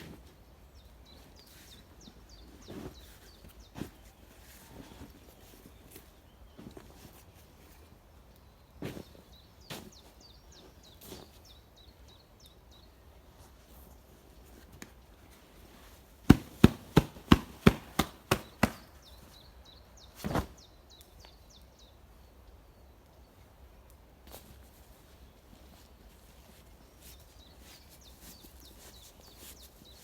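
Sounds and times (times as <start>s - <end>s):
sharp knocks: 16.3s - 18.9s
thuds: 16.3s - 18.9s.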